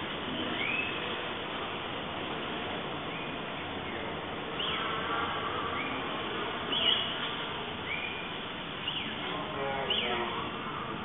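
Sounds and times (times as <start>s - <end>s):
background hiss: 0.0s - 11.0s
birds whistling calls: 0.5s - 1.1s, 4.6s - 5.0s, 6.7s - 7.2s, 7.8s - 9.2s.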